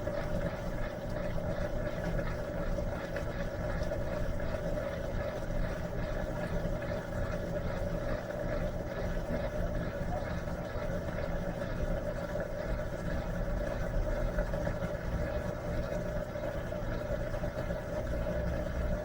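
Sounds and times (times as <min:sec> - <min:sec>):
washing machine humming: 0:00.0 - 0:19.0.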